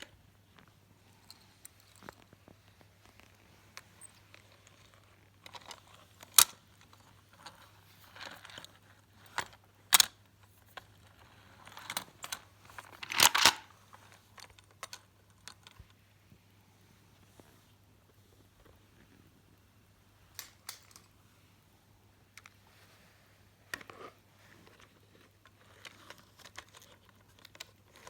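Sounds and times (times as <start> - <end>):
toy vehicles clicking and knocking: 3.2 - 15.9, 20.4 - 21.1, 25.4 - 28.0.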